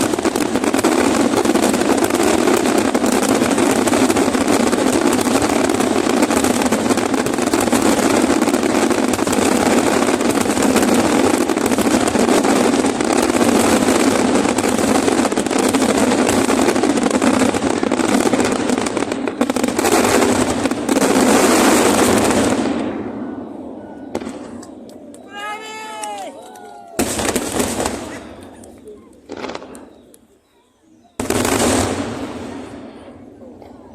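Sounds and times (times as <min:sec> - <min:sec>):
fireworks bangs and crackling: 0:00.0 - 0:33.9.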